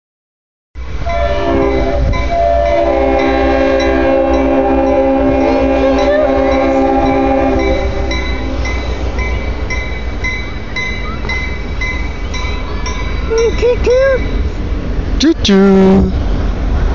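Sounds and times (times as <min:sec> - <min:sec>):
train horn chord: 0:01.0 - 0:09.0
person speaking: 0:15.2 - 0:16.2.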